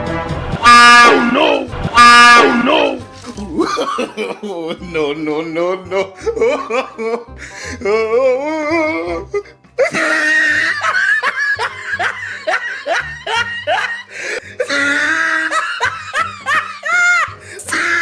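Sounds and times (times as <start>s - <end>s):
background music: 0.0s - 18.0s
person laughing loudly: 3.3s - 4.8s, 5.9s - 7.3s, 9.8s - 17.4s.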